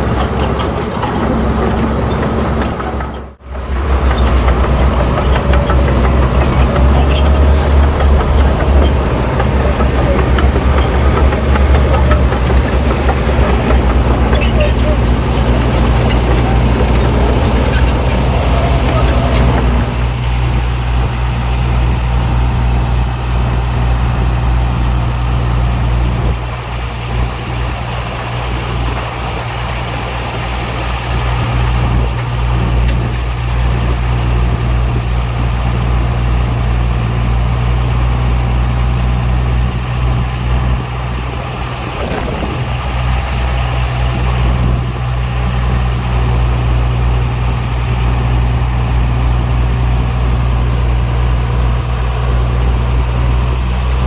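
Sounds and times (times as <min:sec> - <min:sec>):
clattering: 0:00.0 - 0:20.1
diesel machinery engine drone: 0:00.0 - 0:54.0.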